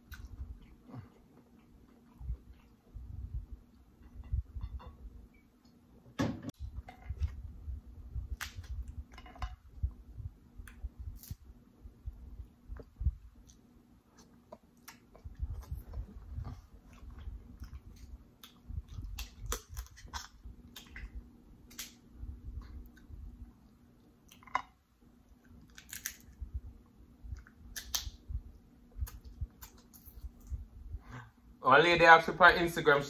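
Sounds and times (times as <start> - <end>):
person chewing food: 0.0 - 3.0, 12.4 - 21.8.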